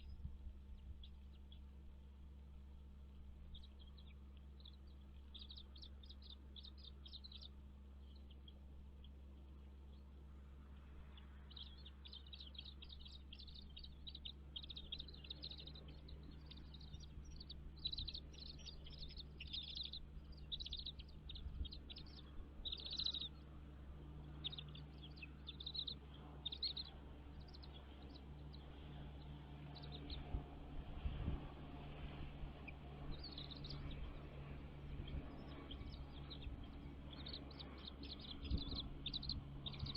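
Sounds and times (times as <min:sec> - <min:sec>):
birds chirping: 0:00.0 - 0:39.9
faint low hum: 0:00.0 - 0:39.9.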